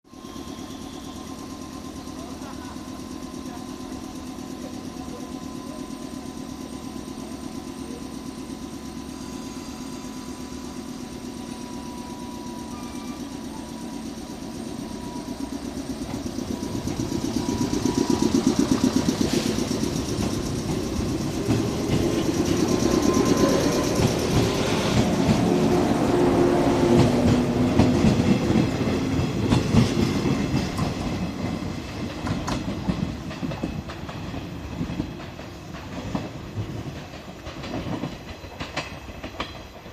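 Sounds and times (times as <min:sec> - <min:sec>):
electric train motors humming: 0:00.1 - 0:39.9
wheels clacking over rail joints: 0:13.2 - 0:39.9.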